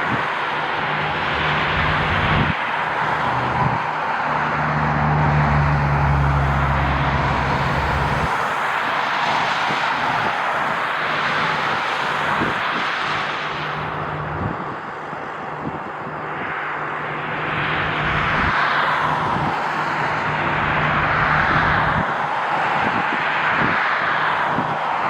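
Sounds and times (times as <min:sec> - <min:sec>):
wind buffeting microphone: 0:00.0 - 0:02.6, 0:07.2 - 0:16.5, 0:17.6 - 0:23.8
jet engines roaring: 0:00.0 - 0:25.0.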